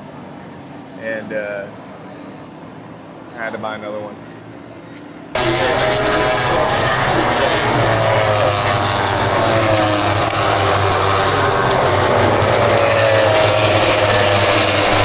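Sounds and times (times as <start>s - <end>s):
motorcycle engine running: 5.4s - 15.0s.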